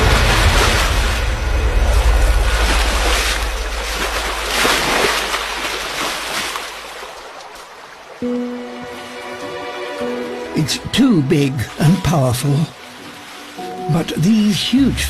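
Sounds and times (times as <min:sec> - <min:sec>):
rushing river water: 0:00.0 - 0:15.0.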